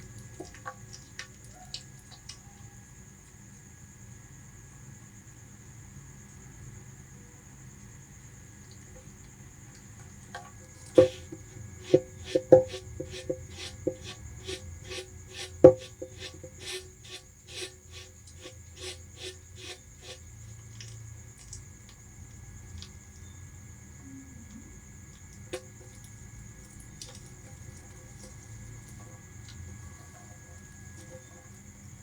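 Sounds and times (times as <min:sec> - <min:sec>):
rat chewing: 0:10.9 - 0:20.3
rat biting sugarcane: 0:11.0 - 0:20.2.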